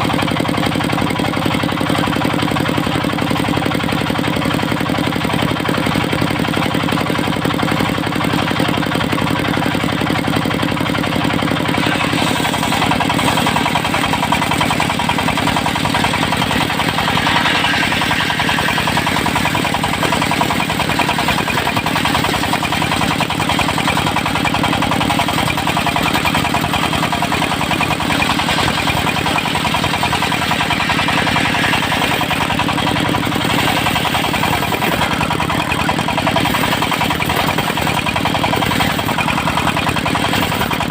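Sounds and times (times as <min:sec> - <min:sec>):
sawmill engine running: 0:00.0 - 0:40.9
saw rig noise: 0:09.6 - 0:40.9.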